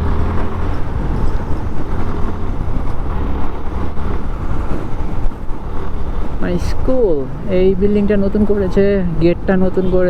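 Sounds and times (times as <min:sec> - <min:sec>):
motorcycle engine running: 0:00.0 - 0:06.4
road and traffic noise: 0:00.0 - 0:10.0.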